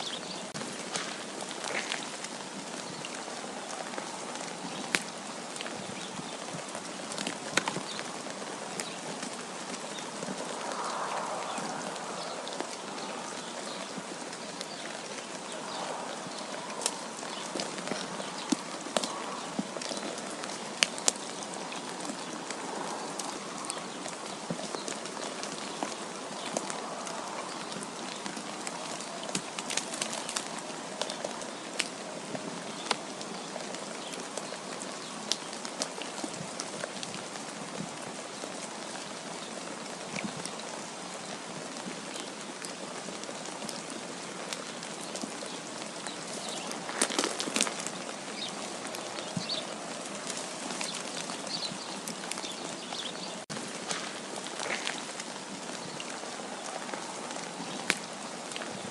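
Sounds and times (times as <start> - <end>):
wind hissing: 9.8 - 14.4.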